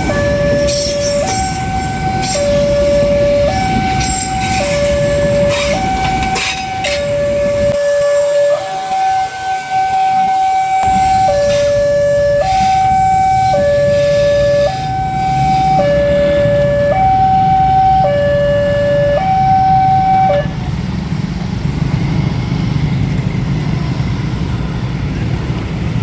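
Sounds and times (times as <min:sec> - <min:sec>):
level crossing alarm: 0:00.0 - 0:20.8.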